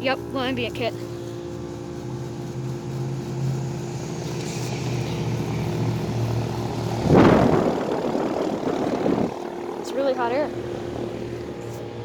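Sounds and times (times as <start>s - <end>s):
compressor hum: 0.0s - 12.0s
condenser fan whoosh: 0.0s - 12.0s
air blowing across microphone: 1.0s - 9.8s.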